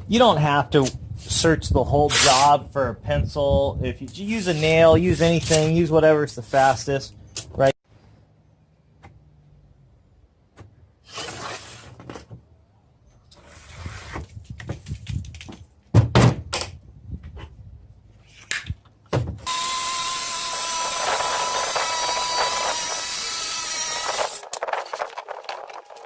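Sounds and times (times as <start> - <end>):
loud thunk: 15.9 - 16.7, 19.1 - 19.4
power tool running: 19.5 - 24.4.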